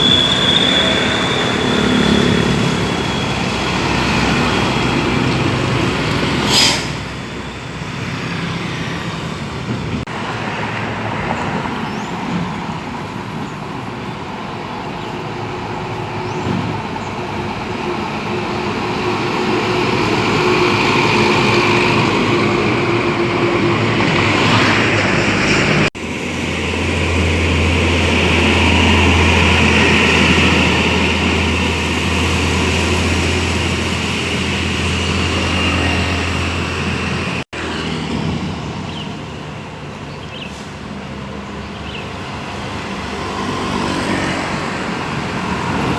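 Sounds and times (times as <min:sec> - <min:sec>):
heavy road traffic: 0:00.0 - 0:45.9
short sharp hiss: 0:06.5 - 0:07.0.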